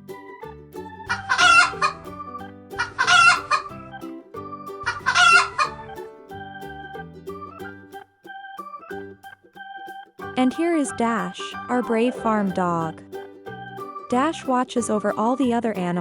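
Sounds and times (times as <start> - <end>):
light keyboard music: 0.0 - 16.0
chicken calling: 1.1 - 2.0, 2.8 - 3.8, 4.8 - 6.1.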